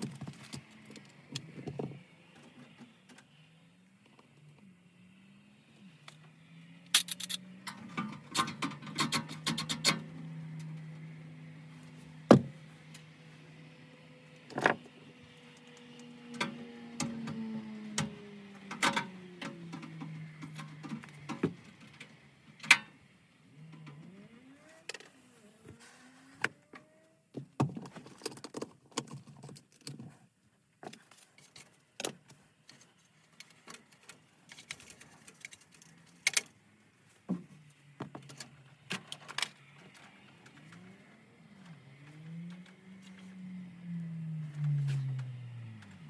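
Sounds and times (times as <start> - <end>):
metal tools clinking: 7.0 - 10.0.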